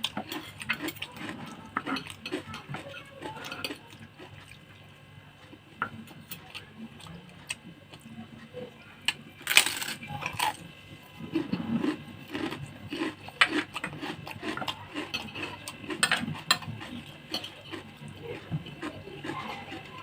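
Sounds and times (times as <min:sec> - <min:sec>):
cutlery scraping a plate: 0:00.0 - 0:03.8, 0:11.3 - 0:17.9
chewing: 0:00.0 - 0:20.0
cutlery clinking on a plate: 0:15.0 - 0:16.7.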